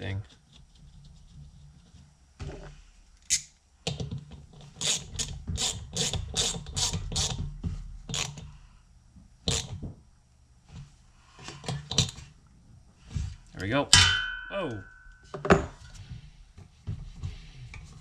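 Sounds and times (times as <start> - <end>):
hand ratchet strokes: 4.7 - 7.4, 8.1 - 8.4.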